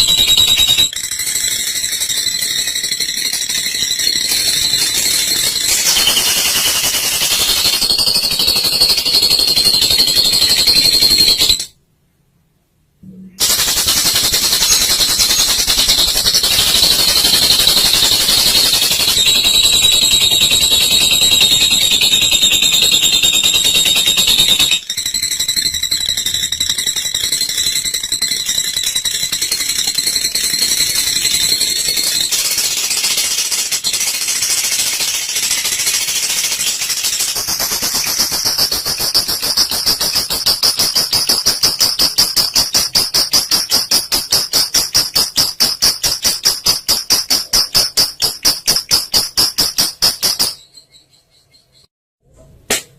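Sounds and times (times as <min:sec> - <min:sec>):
bird high-pitched chattering trill: 0:13.4 - 0:25.2, 0:45.1 - 0:51.9.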